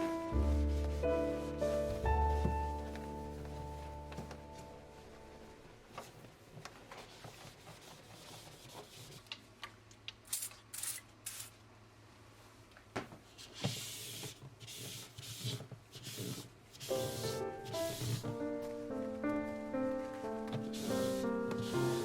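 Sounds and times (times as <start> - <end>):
rubbing noise: 0.0 - 4.1, 13.7 - 22.0.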